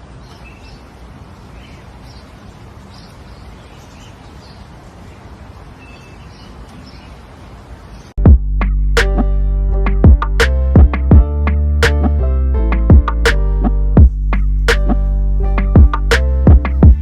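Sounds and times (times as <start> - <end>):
outdoor background hiss: 0.0 - 8.2.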